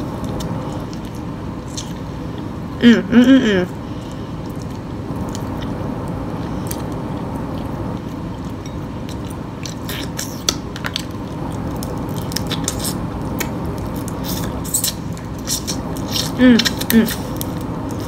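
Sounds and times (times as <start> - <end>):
chewing mouth sounds: 3.9 - 5.8, 6.4 - 18.0.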